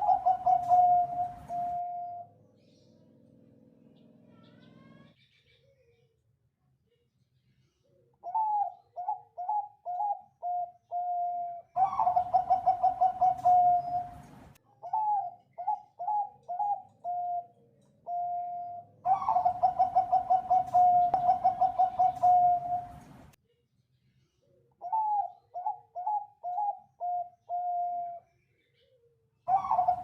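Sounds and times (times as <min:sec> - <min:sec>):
dove cooing: 0:00.0 - 0:02.4, 0:08.2 - 0:23.3, 0:24.8 - 0:28.2, 0:29.5 - 0:30.0.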